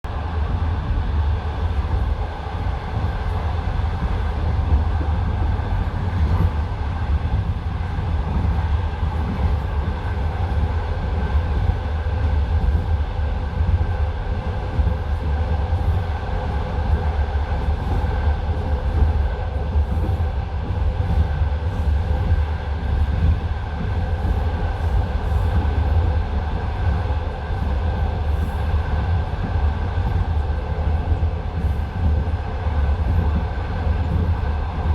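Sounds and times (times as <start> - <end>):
train wheels rumbling on rails: 0.1 - 34.9.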